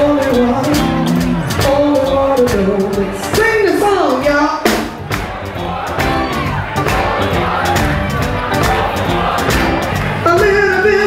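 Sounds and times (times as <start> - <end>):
woman singing: 0.0 - 4.8, 10.2 - 11.0
band playing: 0.0 - 11.0
drum hits: 0.8 - 10.7.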